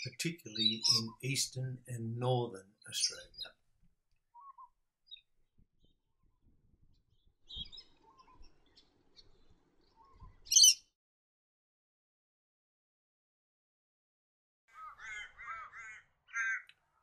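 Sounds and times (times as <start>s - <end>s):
birds calling: 0.0s - 3.5s, 7.5s - 10.8s, 14.7s - 16.7s.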